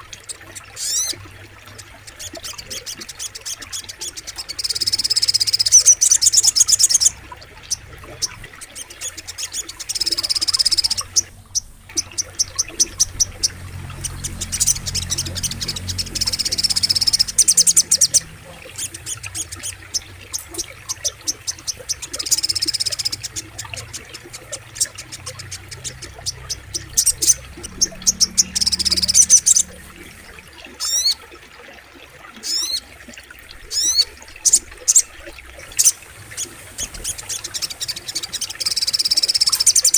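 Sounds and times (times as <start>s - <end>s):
faint flowing water: 0.0s - 39.9s
bird chattering trills: 2.1s - 31.2s.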